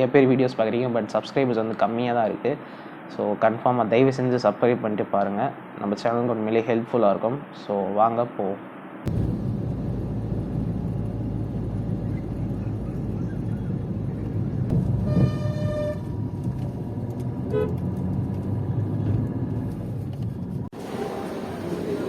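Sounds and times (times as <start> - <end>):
road traffic rumbling: 9.1 - 22.0
vehicle horn honking: 15.0 - 16.1, 17.5 - 17.8.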